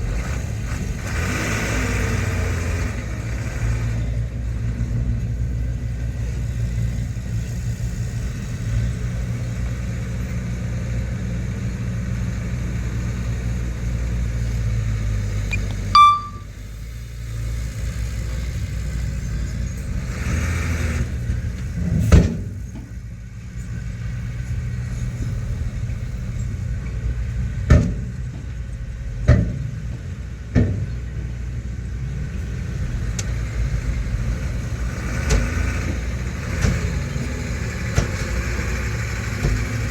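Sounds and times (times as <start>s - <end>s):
diesel machinery rumbling: 0.0s - 39.9s
sharp high-pitched sound: 15.5s - 16.5s.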